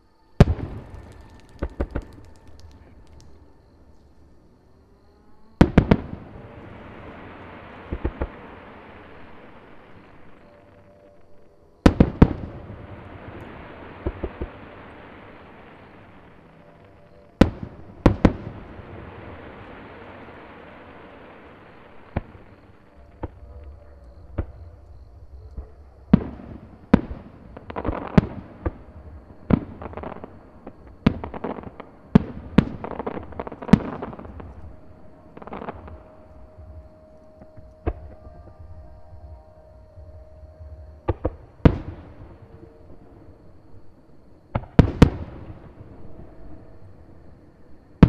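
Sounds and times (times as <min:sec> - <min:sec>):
fireworks bursting with bangs: 0:00.4 - 0:03.5, 0:05.6 - 0:10.3, 0:11.8 - 0:23.5, 0:26.1 - 0:38.7, 0:41.0 - 0:42.5, 0:44.5 - 0:46.4
fireworks crackling: 0:00.4 - 0:03.9, 0:05.6 - 0:10.7, 0:11.9 - 0:23.5, 0:26.1 - 0:38.2.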